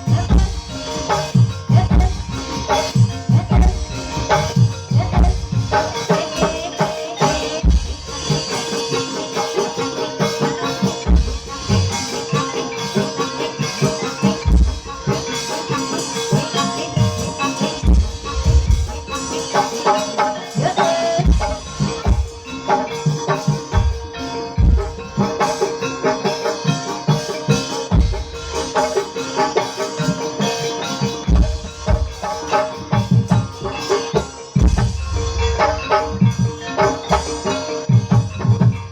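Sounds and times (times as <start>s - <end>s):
drum strokes: 0.0s - 38.9s
mallet-struck pitched percussion: 0.0s - 38.9s
rattling percussion: 0.0s - 38.9s.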